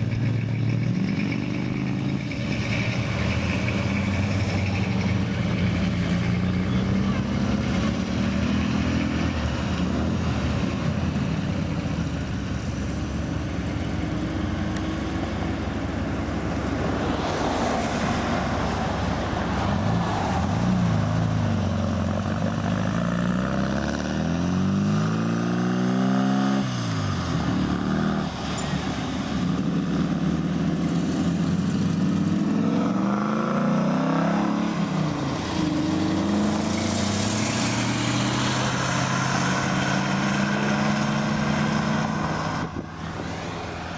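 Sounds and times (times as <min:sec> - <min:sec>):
car engines revving: 0:00.0 - 0:43.9.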